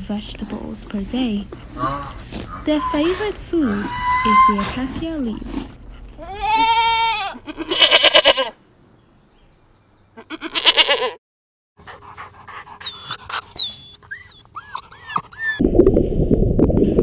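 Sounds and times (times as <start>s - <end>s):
goats bleating: 6.2s - 8.6s, 10.2s - 11.2s
puppy whining: 11.9s - 15.6s.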